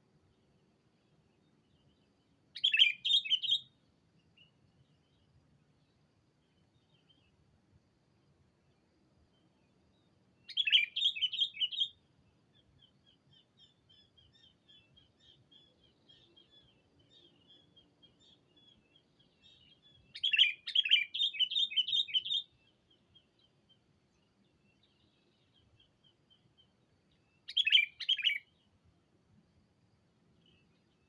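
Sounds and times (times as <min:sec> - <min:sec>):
faint rapid bird chattering: 0:02.6 - 0:03.7, 0:10.4 - 0:12.0, 0:12.6 - 0:28.7
bulbul whistled song: 0:02.6 - 0:03.8, 0:10.5 - 0:12.0, 0:19.4 - 0:22.5, 0:27.4 - 0:28.5.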